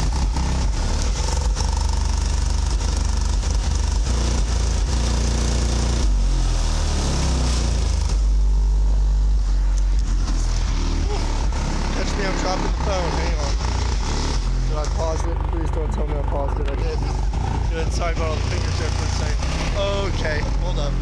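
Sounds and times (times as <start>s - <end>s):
heavy bass from car subwoofers: 0.0s - 21.0s.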